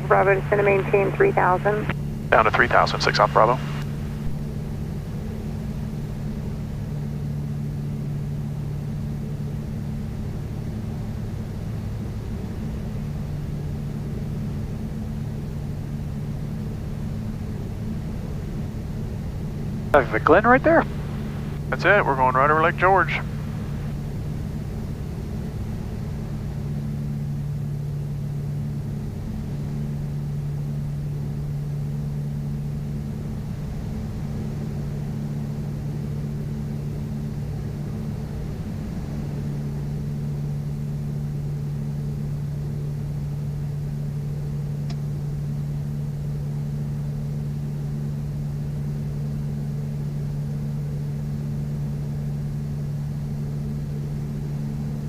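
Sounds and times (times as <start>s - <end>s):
propeller plane engines droning: 0.0s - 55.0s
faint click: 44.8s - 45.0s.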